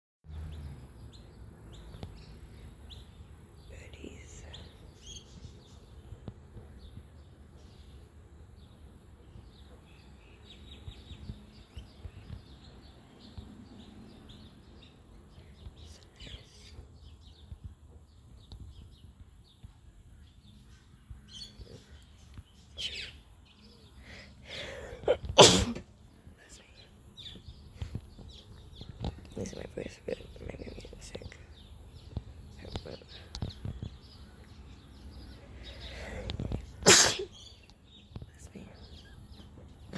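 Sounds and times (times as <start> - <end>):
faint bird chirps: 0.3 - 25.3.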